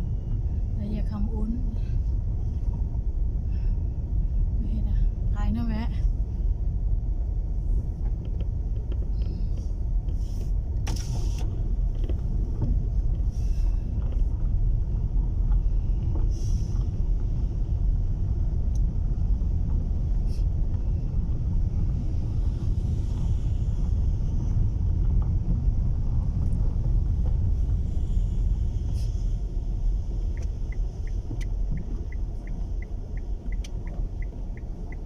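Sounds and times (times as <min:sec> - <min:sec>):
car cabin rumble: 0:00.0 - 0:35.0
faint clicks and knocks: 0:08.0 - 0:10.2.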